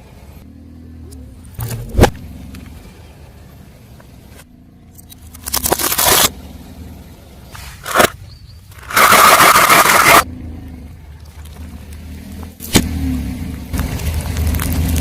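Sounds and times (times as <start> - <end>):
low car rumble: 0.0 - 15.0
tyre crushing objects: 7.6 - 8.2, 8.8 - 10.2.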